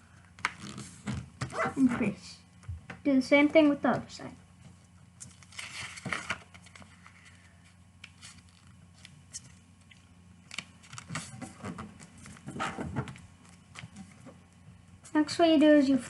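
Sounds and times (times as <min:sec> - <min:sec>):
paper being folded and creased: 0:00.4 - 0:01.9, 0:05.2 - 0:14.4.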